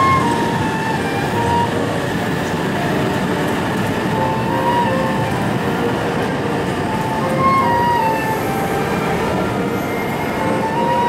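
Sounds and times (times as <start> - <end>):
rumble of train wheels: 0.0 - 11.0
train pulling along platform: 0.0 - 11.0.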